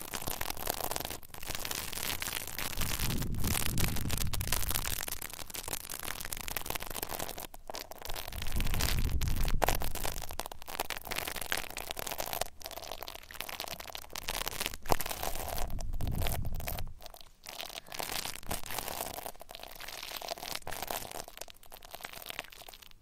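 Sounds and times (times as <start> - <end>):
rubbing and scratching on microphone: 0.0 - 23.0
low rumble: 8.3 - 10.2, 15.6 - 16.9.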